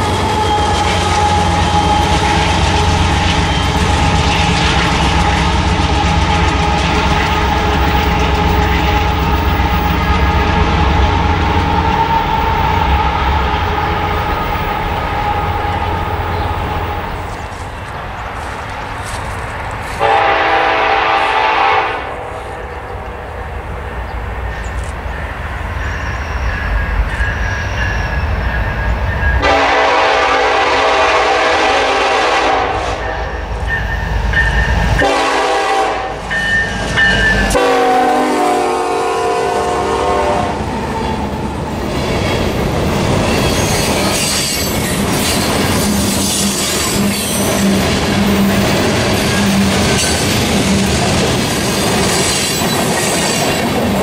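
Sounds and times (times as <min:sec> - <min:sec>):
locomotive air horn blasts: 0:00.0 - 0:04.2, 0:20.0 - 0:22.6, 0:29.4 - 0:33.4, 0:35.0 - 0:36.6, 0:37.4 - 0:40.6
wheels clattering on rail: 0:00.0 - 0:12.6, 0:41.0 - 0:54.0
diesel engines rumbling: 0:00.0 - 0:32.3.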